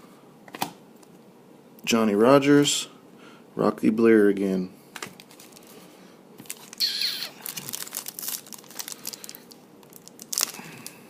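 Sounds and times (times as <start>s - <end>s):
packaging crinkling: 5.0s - 11.0s
crisp rustles: 5.1s - 11.0s
packaging ripping: 5.2s - 5.8s, 6.4s - 11.0s.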